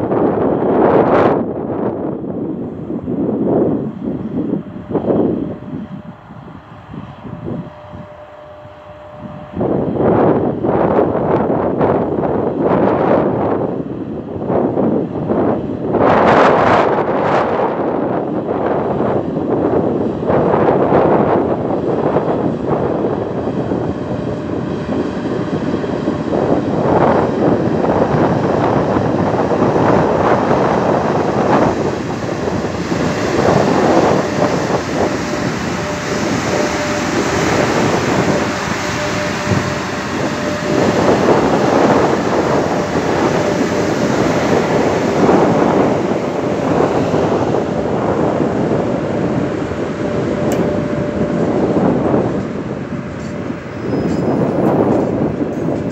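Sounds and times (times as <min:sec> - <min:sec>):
freight train passing: 0:00.0 - 0:55.9
wind buffeting microphone: 0:00.0 - 0:55.9
wheels clattering on rails: 0:49.6 - 0:55.9.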